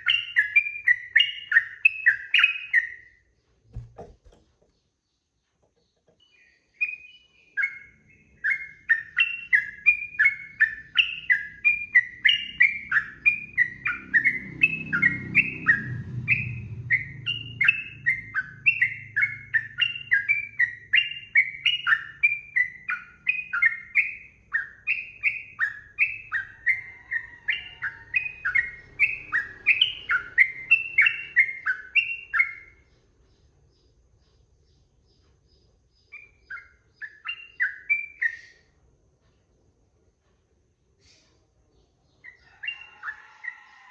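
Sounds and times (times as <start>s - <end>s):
bird singing whistled notes: 0.0s - 3.2s, 6.2s - 33.8s, 34.6s - 38.7s.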